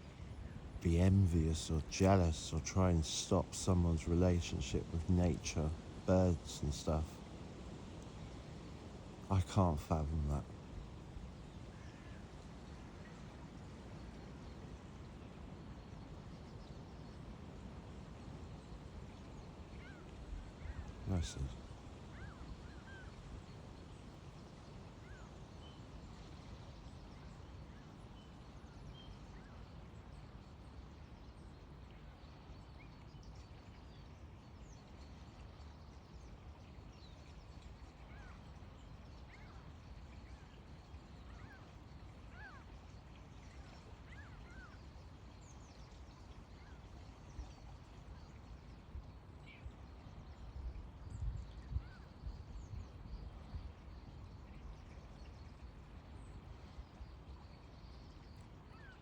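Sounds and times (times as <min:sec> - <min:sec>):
distant bird chirps: 0:00.1 - 0:14.7.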